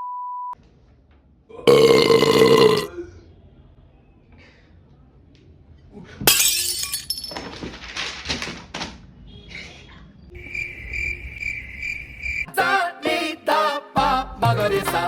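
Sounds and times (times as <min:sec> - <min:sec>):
cricket chirping: 0:10.4 - 0:12.5
music with singing: 0:12.5 - 0:15.0.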